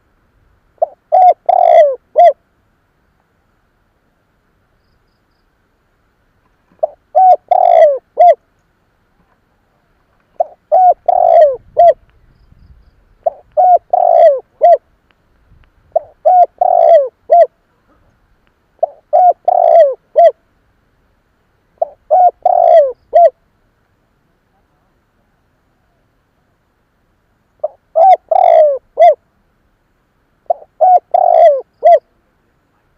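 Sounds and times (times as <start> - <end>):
dove cooing: 0.8 - 2.4, 6.7 - 8.4, 9.8 - 12.0, 13.2 - 14.9, 15.9 - 18.1, 18.8 - 20.4, 21.8 - 23.4, 27.6 - 29.2, 30.4 - 32.2.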